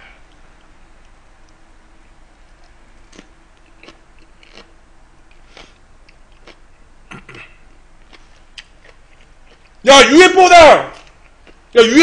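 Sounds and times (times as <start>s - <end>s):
person crunching chili pepper: 2.6s - 7.4s, 8.0s - 9.8s.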